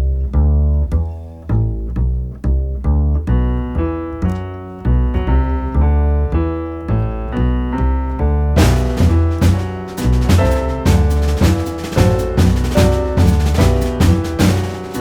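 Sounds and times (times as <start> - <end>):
plucked double bass: 0.0 - 15.0
piano chords: 3.4 - 15.0
cymbal crash: 8.6 - 15.0.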